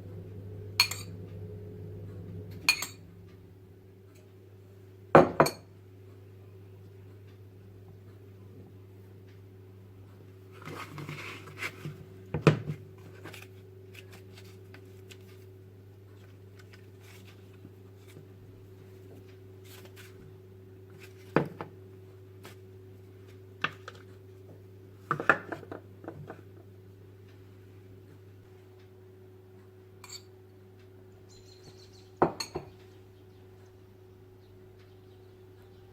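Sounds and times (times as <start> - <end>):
steady low hum: 0.0 - 35.9
soft rustle: 10.5 - 12.1.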